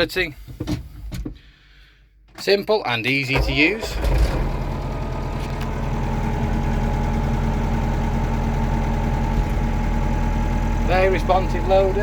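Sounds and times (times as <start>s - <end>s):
tractor diesel engine from cab: 3.3s - 12.0s.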